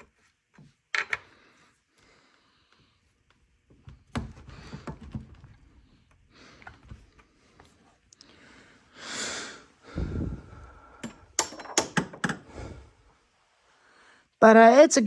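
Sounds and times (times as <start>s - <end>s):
noisy breath: 1.2s - 3.3s, 4.3s - 11.4s, 12.4s - 14.4s
objects clicking and knocking: 11.0s - 12.5s.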